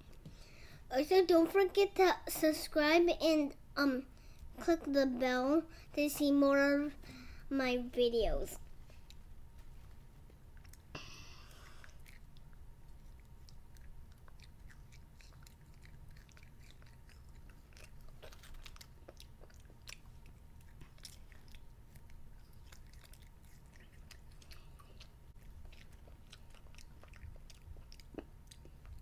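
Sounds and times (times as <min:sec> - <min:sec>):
child chewing: 0:08.7 - 0:29.0.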